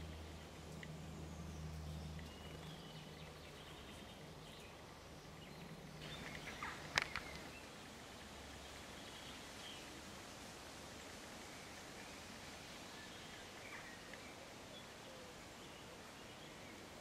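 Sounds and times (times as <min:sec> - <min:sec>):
low steady hum: 0:00.0 - 0:17.0
bird chirps and calls: 0:01.4 - 0:07.7.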